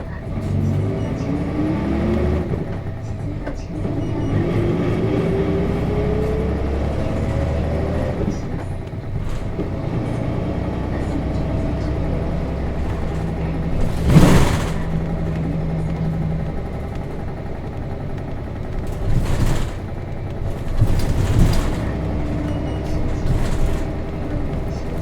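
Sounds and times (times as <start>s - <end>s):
bus diesel engine running: 0.0s - 25.0s
steady engine tone: 0.0s - 25.0s
light knocks and rattles: 5.6s - 25.0s.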